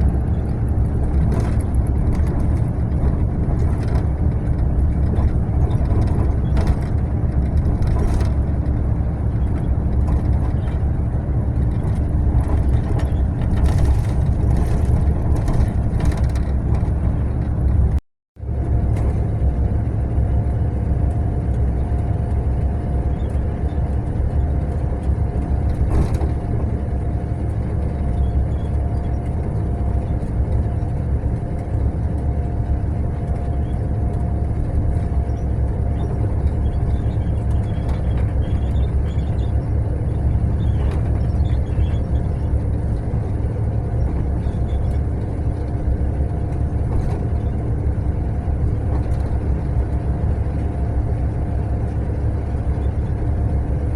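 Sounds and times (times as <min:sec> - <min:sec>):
coach engine and road rumble: 0:00.0 - 0:53.9.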